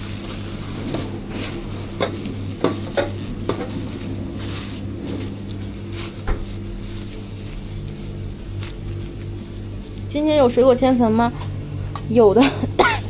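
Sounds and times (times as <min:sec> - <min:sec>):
electrical hum: 0:00.0 - 0:13.0
utensils knocking and scraping: 0:00.4 - 0:06.6.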